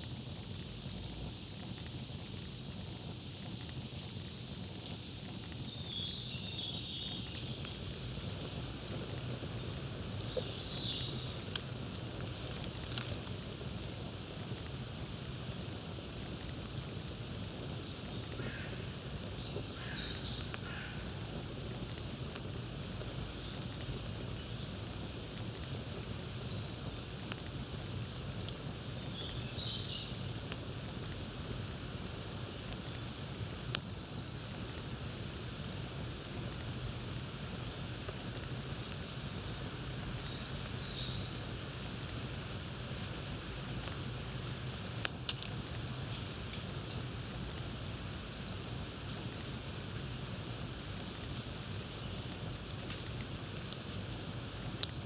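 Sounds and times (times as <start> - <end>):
campfire crackling and popping: 0.0 - 55.0
small birds chirping: 4.0 - 13.0, 17.6 - 22.2, 28.8 - 31.2, 39.0 - 41.4.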